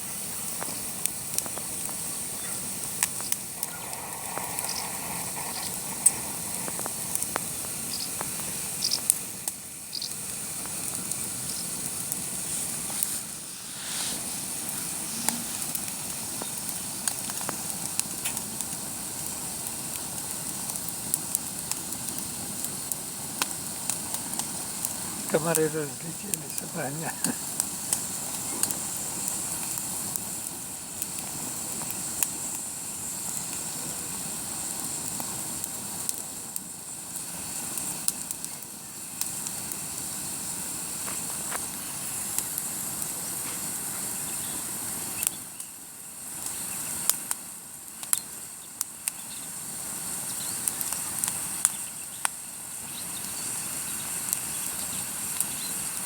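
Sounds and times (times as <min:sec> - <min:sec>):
burning wood popping and crackling: 0:00.0 - 0:56.0
campfire hissing: 0:00.0 - 0:56.0.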